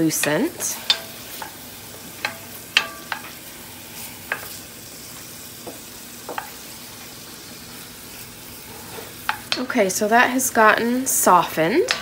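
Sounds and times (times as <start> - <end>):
vegetables sizzling in butter: 0.0 - 12.0
wooden spoon scraping a pot: 8.4 - 9.6.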